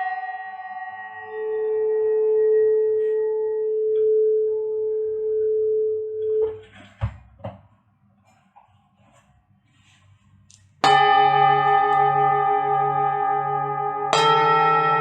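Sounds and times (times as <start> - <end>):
singing bowl ringing: 0.0 - 6.6, 10.8 - 15.0.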